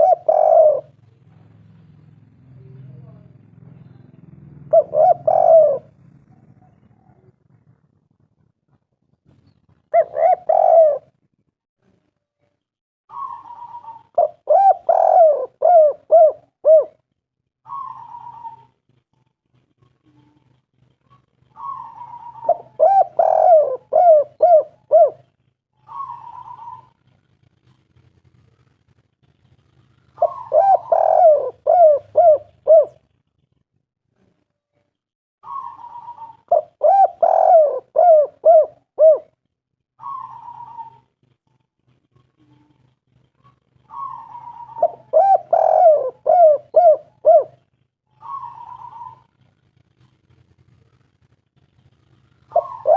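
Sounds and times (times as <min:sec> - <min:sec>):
dove rolling trill: 0:00.0 - 0:01.0, 0:04.3 - 0:07.8, 0:09.7 - 0:11.2, 0:13.1 - 0:17.0, 0:17.6 - 0:19.0, 0:19.8 - 0:33.6, 0:35.4 - 0:39.4, 0:40.0 - 0:41.4, 0:42.1 - 0:52.9
dove cooing: 0:00.0 - 0:01.2, 0:04.0 - 0:08.5, 0:09.4 - 0:11.2, 0:13.1 - 0:33.6, 0:35.4 - 0:52.9.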